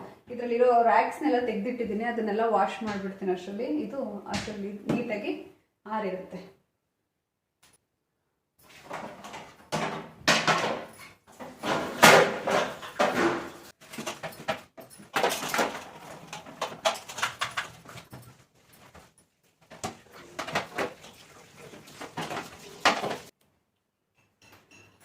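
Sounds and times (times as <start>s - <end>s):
plastic and glass clattering: 8.6s - 23.3s.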